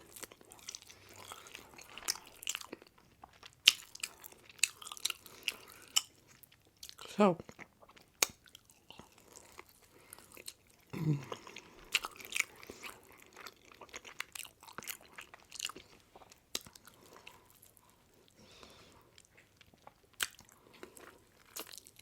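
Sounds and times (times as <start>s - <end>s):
chewing and crunching food: 0.0s - 22.0s
wet mouth sounds: 10.9s - 17.7s.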